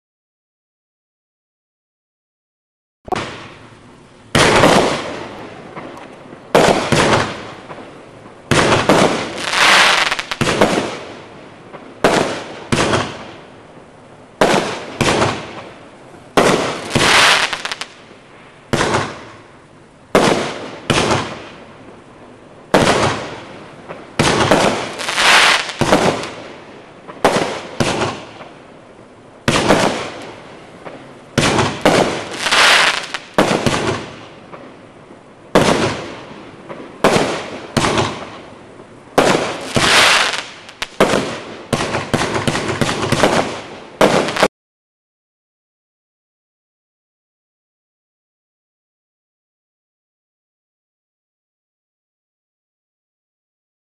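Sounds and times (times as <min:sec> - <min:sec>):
fireworks bangs with crackling tails: 0:03.1 - 0:44.5.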